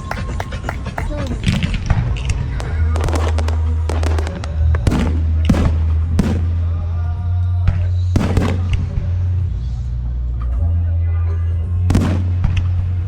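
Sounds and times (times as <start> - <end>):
fireworks bursting: 0.0 - 6.9, 7.7 - 9.4, 11.8 - 13.0.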